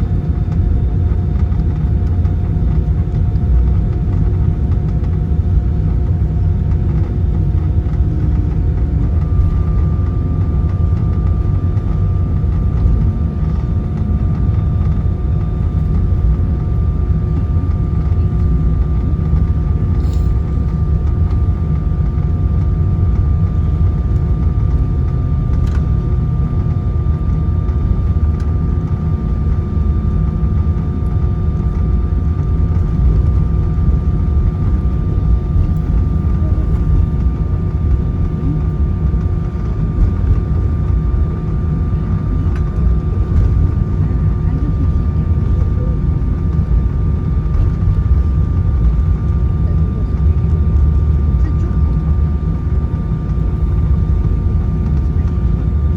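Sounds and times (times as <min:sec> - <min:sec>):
jet engines at taxi power: 0:00.0 - 0:55.9
low cabin rumble: 0:00.0 - 0:55.9
steady whining tones: 0:00.0 - 0:55.9
higher whine: 0:06.1 - 0:22.3.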